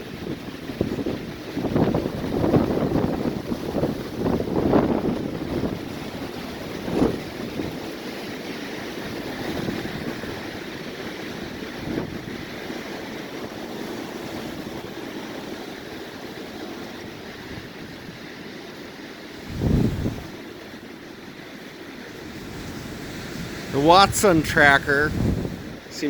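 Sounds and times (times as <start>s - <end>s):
strong wind buffeting microphone: 0.0s - 7.9s, 9.0s - 12.6s, 19.4s - 20.4s, 22.2s - 25.9s.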